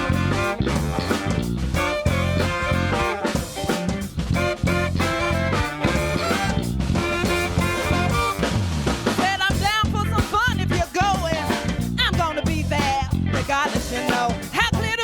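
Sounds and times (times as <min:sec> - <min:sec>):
sliding wavering lead melody: 0:00.0 - 0:08.8
live band playing: 0:00.0 - 0:15.0.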